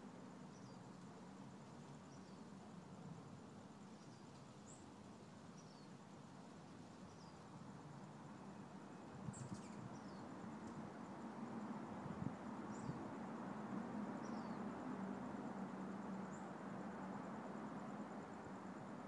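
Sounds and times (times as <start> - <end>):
low background noise: 0.0 - 19.0
small birds chirping: 9.2 - 10.4.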